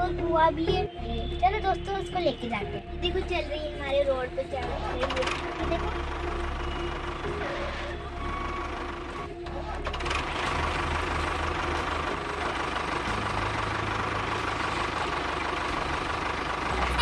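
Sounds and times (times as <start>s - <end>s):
mini tractor engine running: 4.6s - 17.0s.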